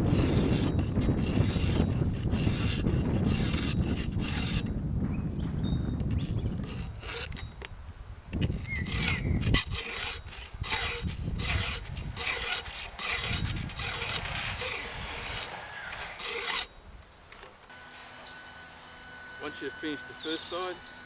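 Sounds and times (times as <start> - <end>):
file rasping on chainsaw chain: 0.0 - 4.7, 6.3 - 7.6, 8.4 - 16.7.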